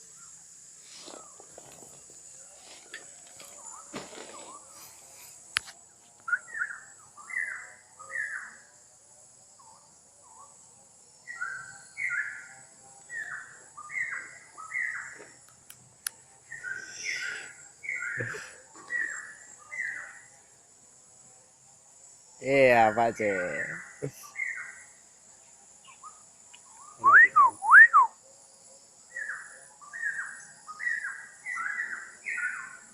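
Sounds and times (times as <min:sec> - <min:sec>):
high insect buzz: 0:00.0 - 0:32.9
bird whistling: 0:06.3 - 0:07.6, 0:16.5 - 0:18.3, 0:26.8 - 0:28.2.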